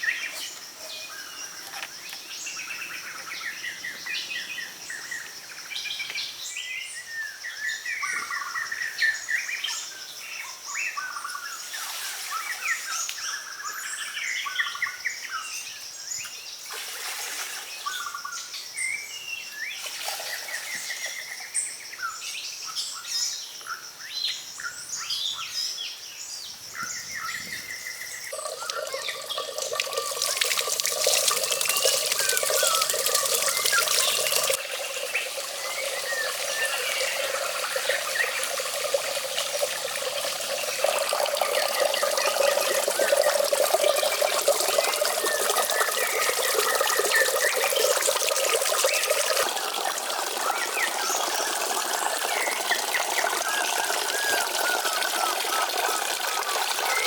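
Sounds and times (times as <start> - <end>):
small birds chirping: 24.3 - 55.9
running splashing water: 28.3 - 57.0.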